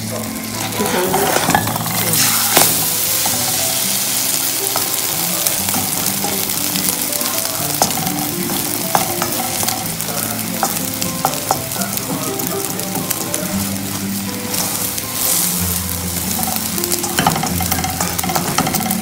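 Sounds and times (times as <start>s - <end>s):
omelette sizzling in a pan: 0.0s - 19.0s
spatula clicking and scraping: 14.5s - 19.0s.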